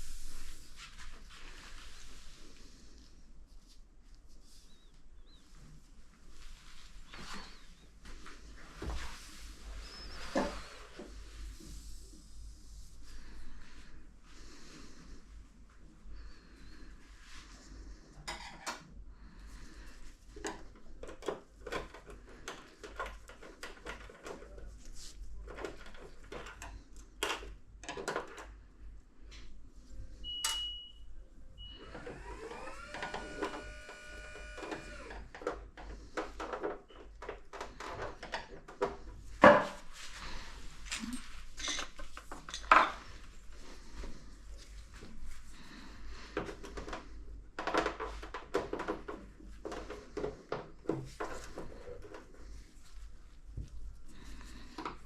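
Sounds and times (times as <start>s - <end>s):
short beep: 30.3s - 31.8s
small motor whirring: 31.7s - 35.3s.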